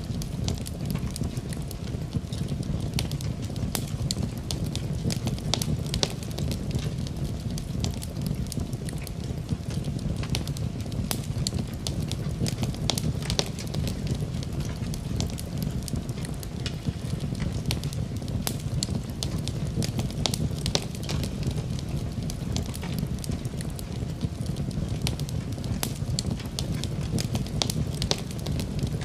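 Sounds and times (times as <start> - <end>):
fire crackling and popping: 0.0 - 29.0
fire flames rumbling: 0.0 - 29.0.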